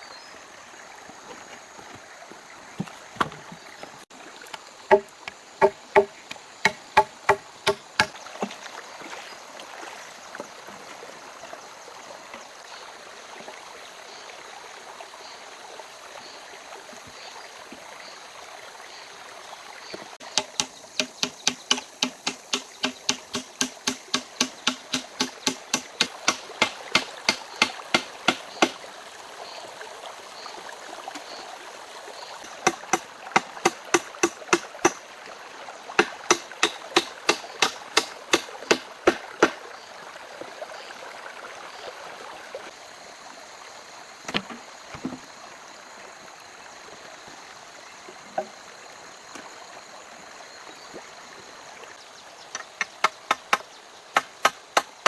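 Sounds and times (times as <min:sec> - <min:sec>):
rushing stream: 0:00.0 - 0:55.0
hand tool striking wood: 0:04.9 - 0:08.6, 0:20.2 - 0:28.8, 0:32.4 - 0:35.0, 0:36.0 - 0:39.6, 0:44.3 - 0:45.2, 0:54.2 - 0:54.9.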